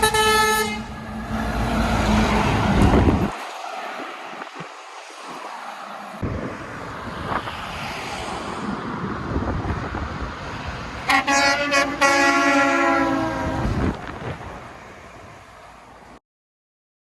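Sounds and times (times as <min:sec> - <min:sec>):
truck air horn blasts: 0:00.0 - 0:01.2, 0:11.0 - 0:14.0
truck passing: 0:00.0 - 0:16.2.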